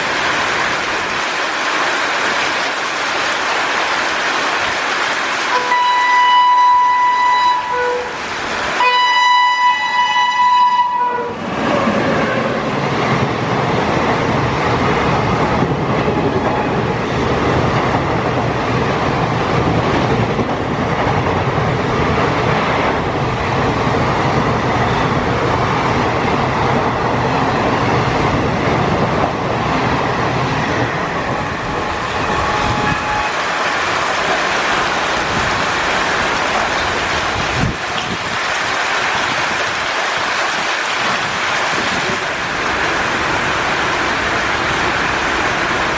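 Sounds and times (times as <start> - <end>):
heavy rain hiss: 0.0 - 15.9, 21.5 - 45.9
train horn: 5.5 - 8.2, 8.8 - 12.6, 31.0 - 33.6.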